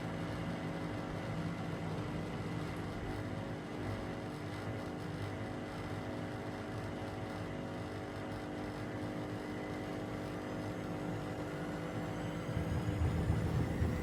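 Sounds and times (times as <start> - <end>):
washing machine motor hum: 0.0 - 14.0
faint rising whine: 11.2 - 14.0
washing machine drum rumble: 11.9 - 14.0.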